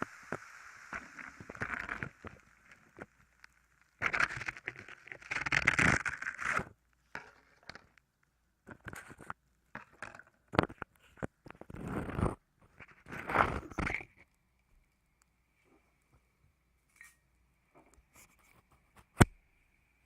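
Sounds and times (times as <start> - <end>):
scraping and crackling at microphone: 0.0 - 14.4, 17.8 - 19.4
crackles and taps: 0.0 - 16.3, 17.7 - 19.4.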